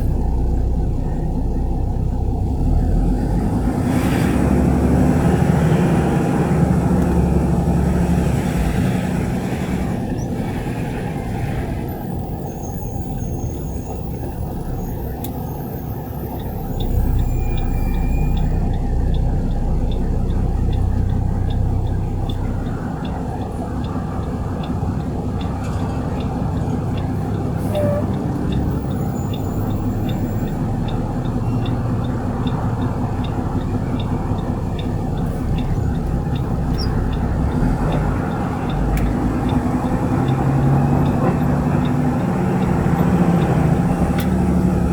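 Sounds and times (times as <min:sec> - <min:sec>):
garbage truck engine rumbling: 0:00.0 - 0:44.9
faint regular ticking: 0:15.1 - 0:44.9.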